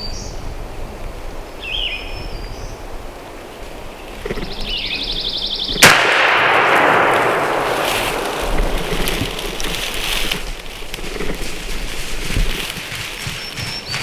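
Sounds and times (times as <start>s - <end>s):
shotgun shot: 5.8s - 9.8s
thumps and rustling: 6.9s - 13.4s.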